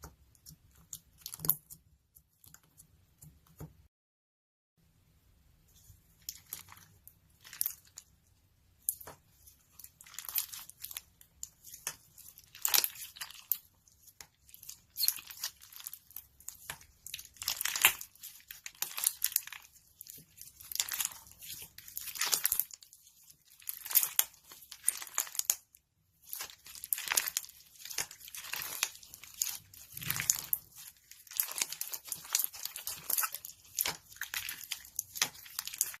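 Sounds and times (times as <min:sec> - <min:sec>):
slime squeezed by hand crackling: 0:26.3 - 0:36.0.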